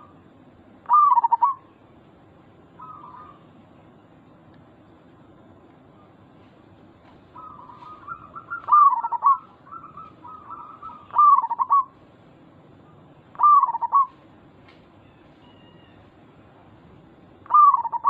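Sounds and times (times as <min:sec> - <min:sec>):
dove cooing: 0:00.8 - 0:01.7, 0:02.8 - 0:03.6, 0:07.3 - 0:12.0, 0:13.3 - 0:14.2, 0:17.4 - 0:18.0.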